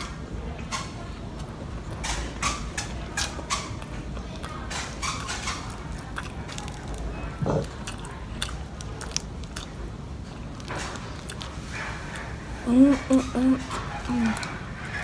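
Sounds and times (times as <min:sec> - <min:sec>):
chewing and crunching: 0:00.0 - 0:15.0.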